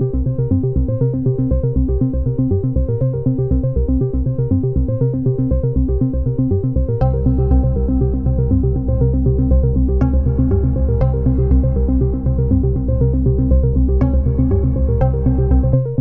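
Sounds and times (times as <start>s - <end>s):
pulsing bass: 0.0s - 16.0s
electronic music: 7.0s - 16.0s.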